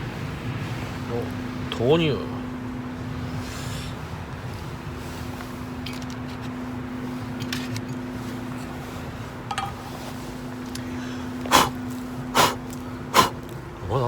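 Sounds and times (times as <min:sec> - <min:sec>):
steady low hum: 0:00.0 - 0:14.0
camp gear ticks and clinks: 0:04.3 - 0:08.8, 0:09.4 - 0:13.9.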